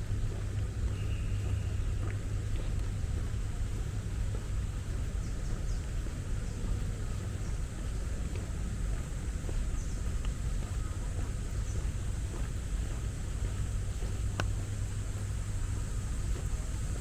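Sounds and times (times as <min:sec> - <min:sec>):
distant city traffic rumble: 0:00.0 - 0:17.0
faint bird chirps: 0:00.9 - 0:02.4.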